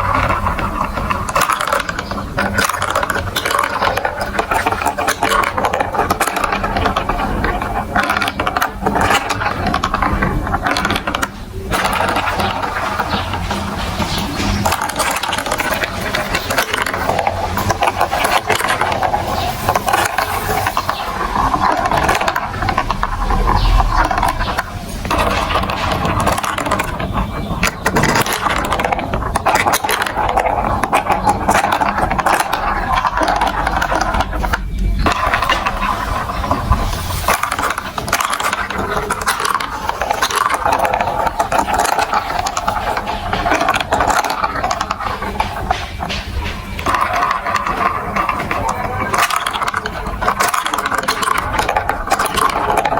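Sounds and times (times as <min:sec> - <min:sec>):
marbles rattling through marble run: 0:00.0 - 0:52.9.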